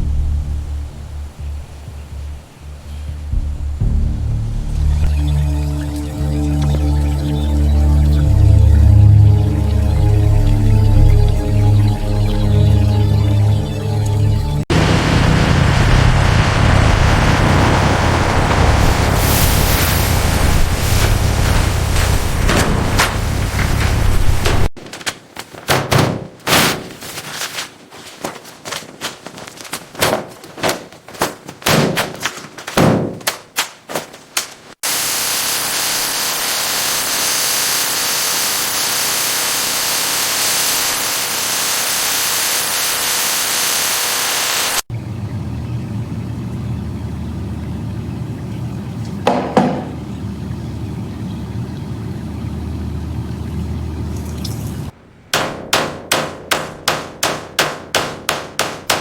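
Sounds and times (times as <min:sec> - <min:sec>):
low hum: 0:00.0 - 0:24.7, 0:44.9 - 0:55.3
loud steady hiss: 0:14.7 - 0:24.8, 0:34.8 - 0:44.9
single knock: 0:49.3 - 0:50.0
sharp impacts: 0:55.3 - 0:59.0.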